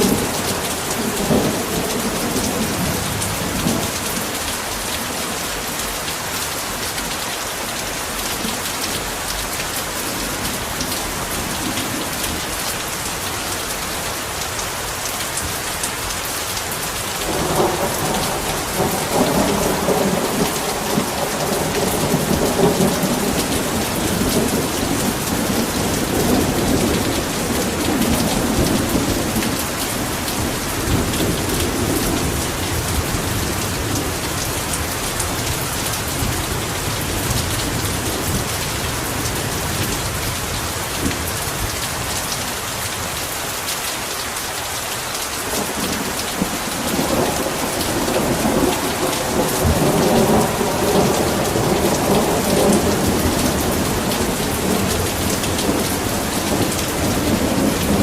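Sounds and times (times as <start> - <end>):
heavy rain pouring: 0.0 - 58.0
low rumble of thunder: 17.3 - 42.1, 45.4 - 58.0.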